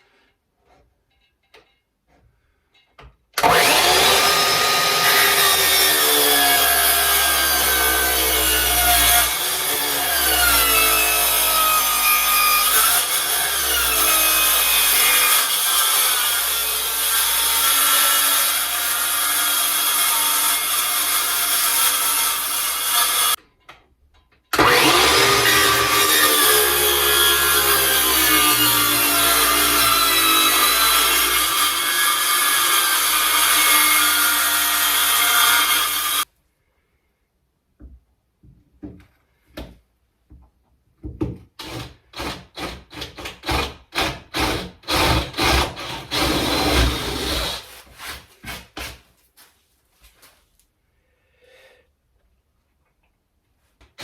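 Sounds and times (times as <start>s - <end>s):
power saw cutting timber: 3.4s - 23.4s, 24.6s - 36.3s, 41.6s - 47.8s.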